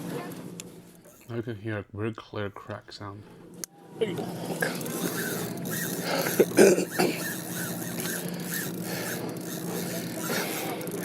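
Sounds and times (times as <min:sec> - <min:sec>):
fishing rod creaking: 0:03.5 - 0:11.0.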